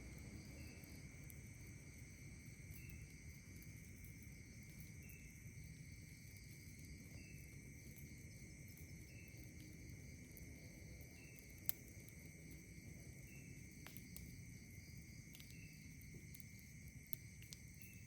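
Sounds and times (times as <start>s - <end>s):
short insect chirp: 0.0s - 8.2s, 12.7s - 18.0s
campfire crack: 0.0s - 18.0s
insects trilling: 0.0s - 18.0s.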